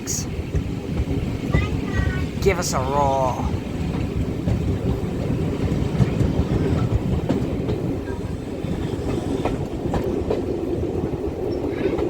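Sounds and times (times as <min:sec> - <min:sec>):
steam train rumbling: 0:00.0 - 0:12.0
wheels clicking over rail joints: 0:00.0 - 0:12.0.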